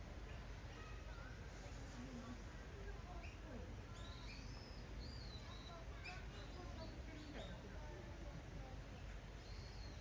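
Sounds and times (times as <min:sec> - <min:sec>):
faint distant voices: 0:00.0 - 0:10.0.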